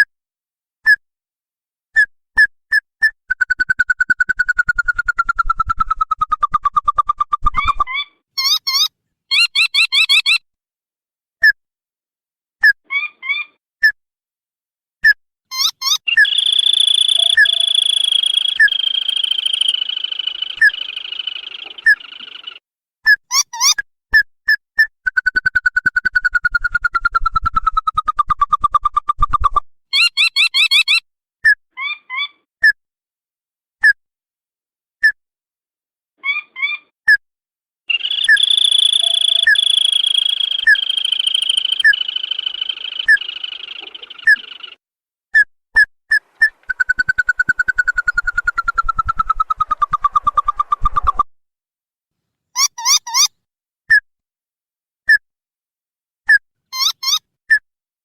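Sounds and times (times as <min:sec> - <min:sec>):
crake call trilling: 0:03.6 - 0:10.4, 0:15.5 - 0:22.6, 0:37.9 - 0:44.8, 0:46.4 - 0:51.2, 0:56.8 - 0:57.2
continuous high trill: 0:16.2 - 0:22.4, 0:37.9 - 0:44.8.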